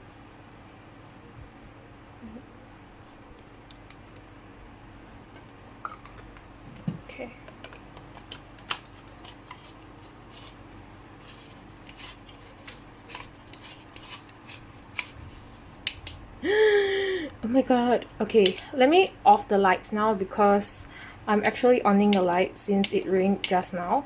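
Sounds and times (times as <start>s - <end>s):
faint steady hum: 0.0s - 24.0s
small clicks and taps: 3.4s - 4.3s.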